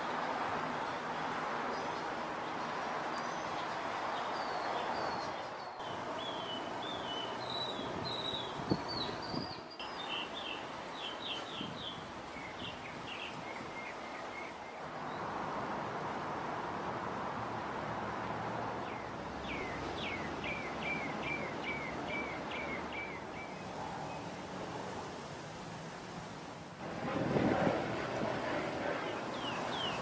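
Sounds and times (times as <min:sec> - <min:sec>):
outdoor background rush: 0:00.0 - 0:30.0
bird chirping: 0:03.2 - 0:15.2, 0:18.8 - 0:24.2, 0:29.0 - 0:30.0.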